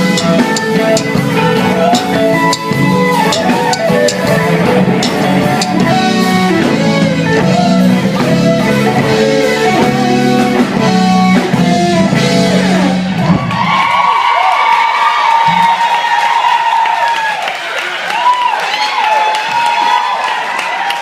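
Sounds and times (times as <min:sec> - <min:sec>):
live soul band playing: 0:00.0 - 0:13.9
guitar: 0:00.0 - 0:14.2.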